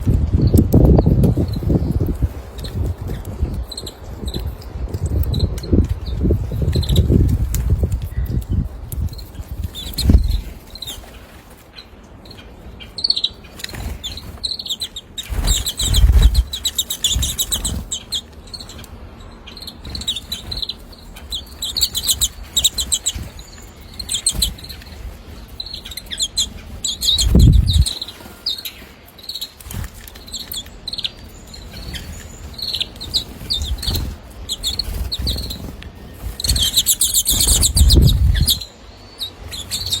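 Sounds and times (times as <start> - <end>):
small birds chirping: 0.0 - 40.0
low rumbling bursts: 18.9 - 28.1, 31.5 - 40.0.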